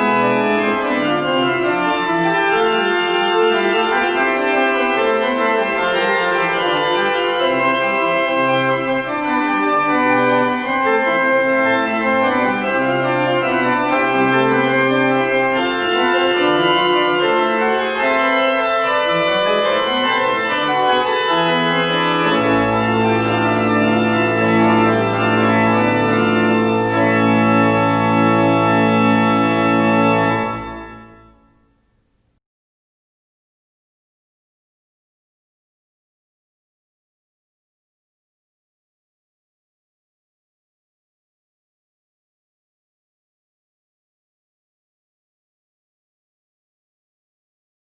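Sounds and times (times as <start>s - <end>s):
organ playing sustained chords: 0.0s - 31.7s.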